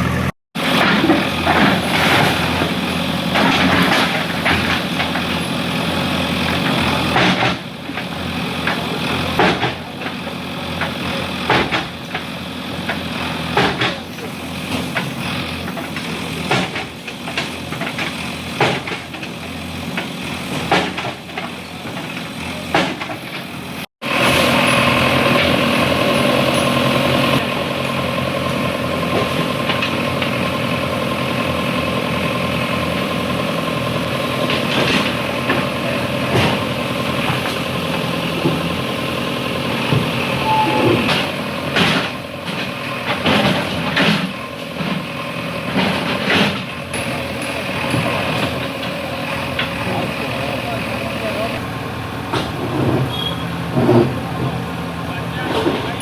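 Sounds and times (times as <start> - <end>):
heavy diesel engine running: 0.0 - 56.0
knocks and clatter: 0.7 - 5.5, 6.4 - 23.6, 34.4 - 38.8, 39.8 - 50.2.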